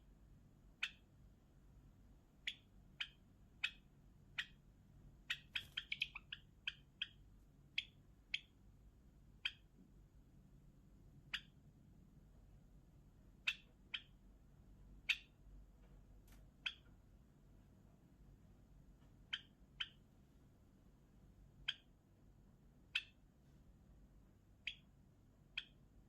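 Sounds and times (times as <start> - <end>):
sparrow chirping: 0.6 - 1.3, 2.2 - 9.8, 11.1 - 11.9, 13.1 - 15.7, 16.5 - 17.3, 19.2 - 20.3, 21.3 - 23.4, 24.3 - 26.0.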